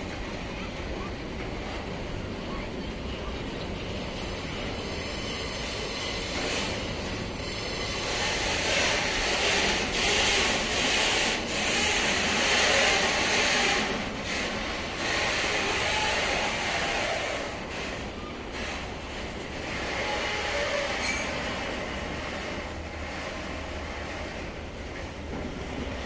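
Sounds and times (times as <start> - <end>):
freight train rolling on rails: 0.0 - 26.0.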